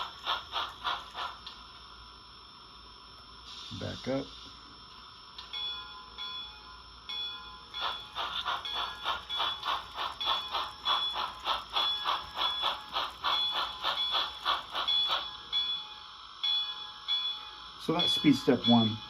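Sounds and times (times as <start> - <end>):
model steam chuffs: 0.0 - 2.8, 3.4 - 4.7, 7.7 - 16.2
model locomotive bell ringing: 5.4 - 19.0.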